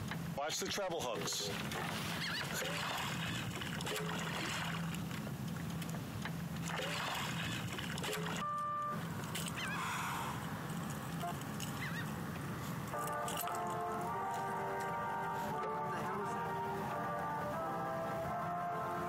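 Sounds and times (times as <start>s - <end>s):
low hum and hiss: 0.0s - 19.0s
waterbirds calling: 1.2s - 13.6s.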